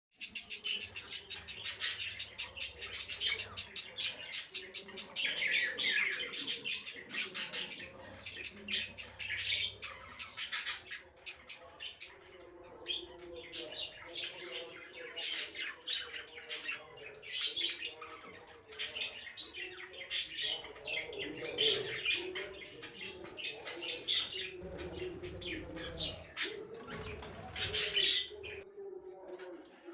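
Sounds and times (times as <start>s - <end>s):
budgerigars chirping: 0.2s - 12.2s.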